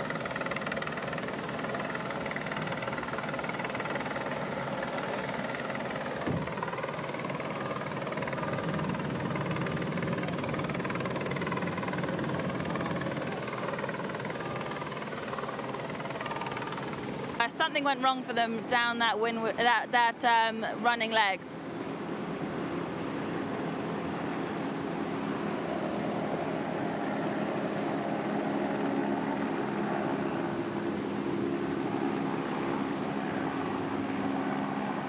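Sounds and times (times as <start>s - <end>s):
motor drone: 0.0s - 17.4s.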